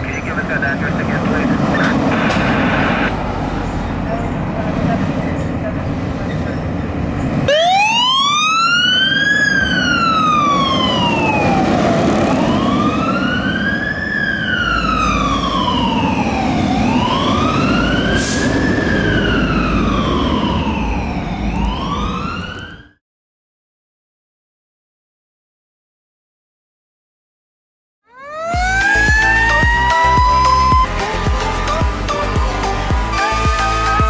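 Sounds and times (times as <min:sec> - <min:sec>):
fire engine siren wailing: 0:00.0 - 0:06.2, 0:07.3 - 0:23.0, 0:28.1 - 0:34.0
low rumble: 0:00.3 - 0:05.0.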